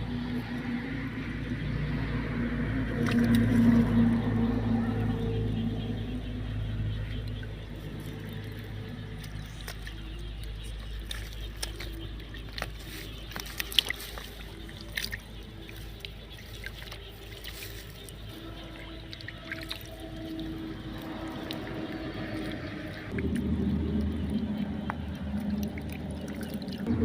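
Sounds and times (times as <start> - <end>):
low rumble: 0.0 - 12.6, 19.9 - 27.0
drips: 0.0 - 27.0
water splashing and trickling: 0.0 - 27.0.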